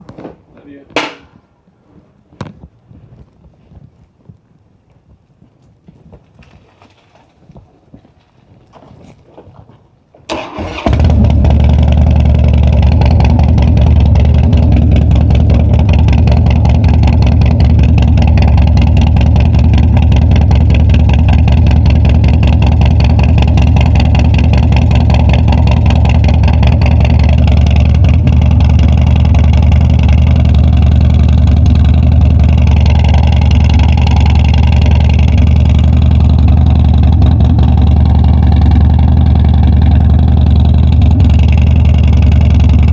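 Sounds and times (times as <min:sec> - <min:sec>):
motorcycle engine starting and running: 0:10.2 - 0:42.9.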